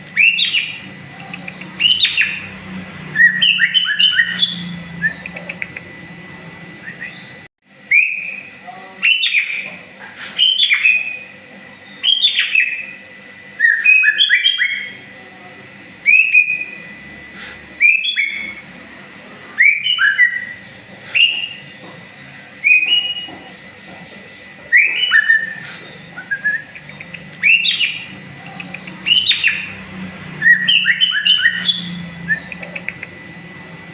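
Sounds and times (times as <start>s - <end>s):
bird whistled song phrases: 0.2s - 0.8s, 1.8s - 5.7s, 6.3s - 7.3s, 7.9s - 9.7s, 13.6s - 15.0s, 17.8s - 18.6s, 19.6s - 21.7s, 22.6s - 23.3s, 24.7s - 28.1s, 29.0s - 33.7s.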